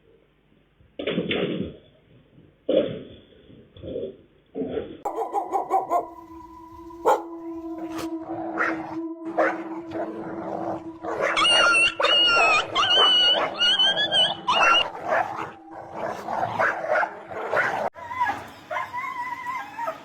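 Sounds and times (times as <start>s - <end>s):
dog yelping and whining: 11.2s - 20.0s.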